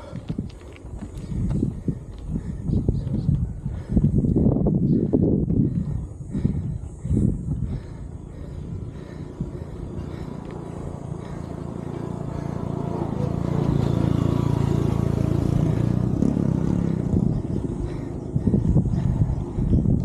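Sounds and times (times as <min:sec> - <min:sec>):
vehicle engine passing: 0:08.3 - 0:20.0.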